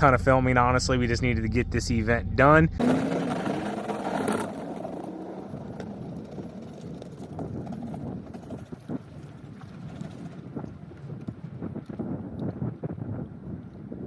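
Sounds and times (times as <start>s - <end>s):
snow plow running: 2.8s - 10.6s.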